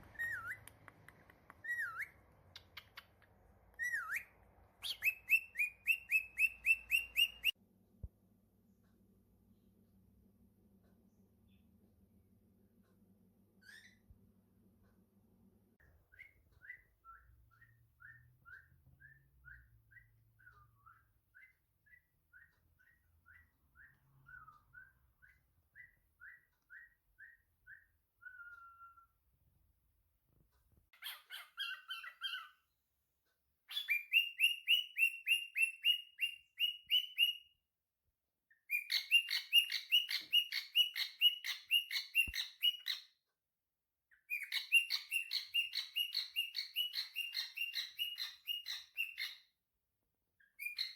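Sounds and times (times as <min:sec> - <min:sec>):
bird whistling soft notes: 0:00.0 - 0:00.6, 0:01.6 - 0:03.1, 0:03.7 - 0:07.6, 0:16.1 - 0:29.2, 0:33.7 - 0:37.6, 0:38.7 - 0:43.1, 0:44.2 - 0:49.5
bird shrill chirping: 0:03.8 - 0:07.6, 0:31.0 - 0:32.6, 0:33.7 - 0:37.5, 0:38.7 - 0:43.1, 0:44.1 - 0:49.5, 0:50.4 - 0:50.9.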